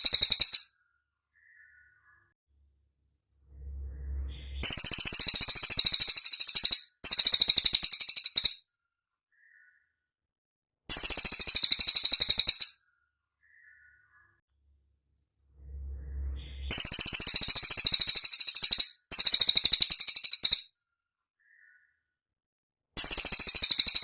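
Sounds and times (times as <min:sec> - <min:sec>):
faint low hum: 0:02.5 - 0:05.4, 0:14.6 - 0:17.4
bird trilling high notes: 0:03.4 - 0:06.8, 0:15.5 - 0:18.6.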